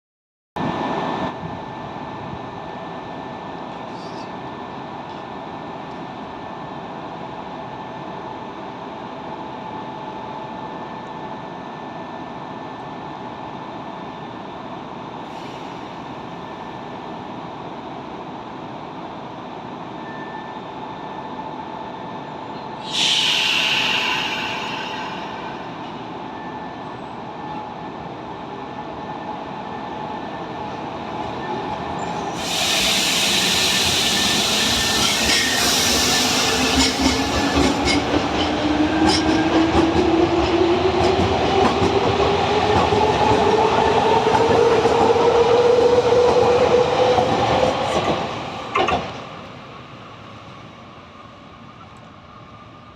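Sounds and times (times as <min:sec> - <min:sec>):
electric train rumble and hum: 0:00.6 - 0:52.9
rail noise: 0:00.6 - 0:52.9
air hiss: 0:22.8 - 0:26.1, 0:32.4 - 0:37.6.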